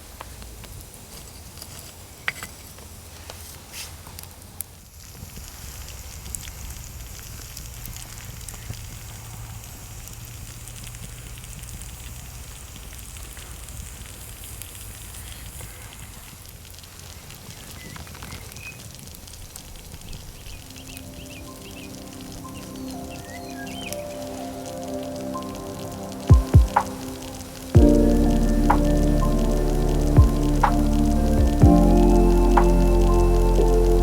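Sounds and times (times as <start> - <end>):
wood fire crackling: 9.7 - 34.0.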